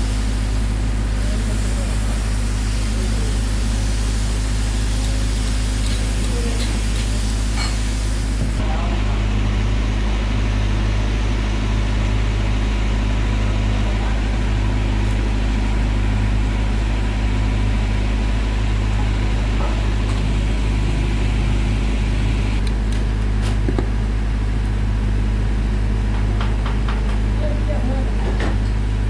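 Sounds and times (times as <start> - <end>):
engine droning: 0.0 - 29.0.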